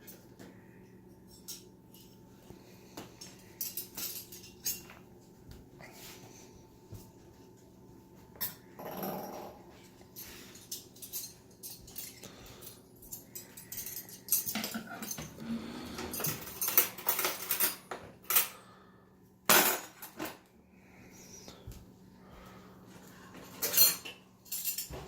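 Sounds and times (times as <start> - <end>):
dishes and cutlery clattering: 13.2 - 18.6, 19.5 - 20.4, 23.4 - 25.0.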